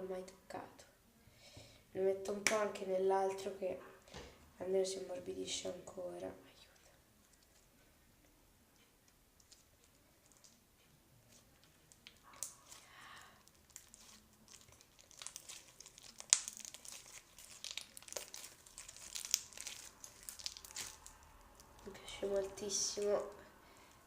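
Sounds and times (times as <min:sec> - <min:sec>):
slime crackling and popping: 0:11.3 - 0:23.9.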